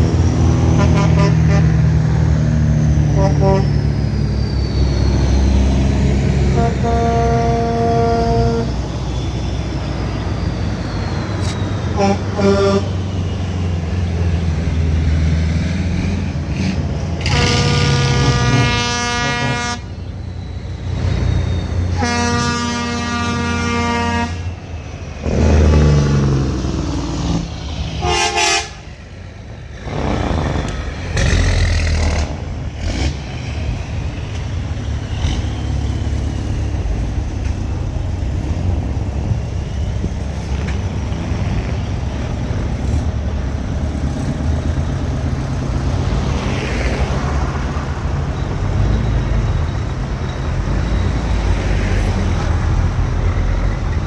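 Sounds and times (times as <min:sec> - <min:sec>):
diesel trucks rolling by: 0:00.0 - 0:54.0
truck horn toot: 0:00.6 - 0:01.9, 0:03.1 - 0:03.9, 0:06.3 - 0:09.2, 0:11.9 - 0:13.3, 0:17.2 - 0:20.1, 0:21.8 - 0:24.6, 0:28.0 - 0:29.0.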